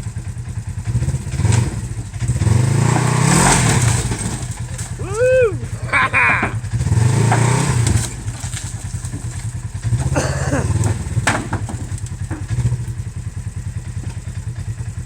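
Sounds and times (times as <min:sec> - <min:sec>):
engine revving under load: 0:00.7 - 0:15.0
knocks and clatter: 0:02.4 - 0:05.0, 0:06.1 - 0:13.0.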